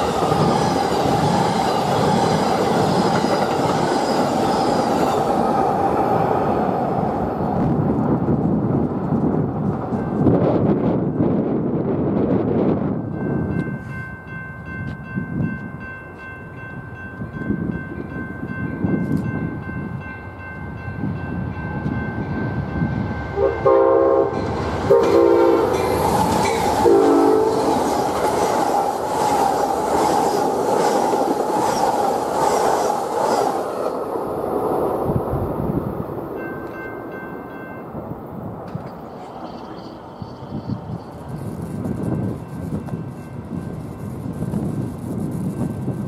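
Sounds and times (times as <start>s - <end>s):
train wheels rumbling over rail joints: 0.0s - 13.1s, 24.3s - 36.8s
crossing bell ringing: 13.1s - 27.8s, 36.3s - 44.1s
locomotive horn blasts: 23.4s - 25.9s, 26.8s - 27.7s.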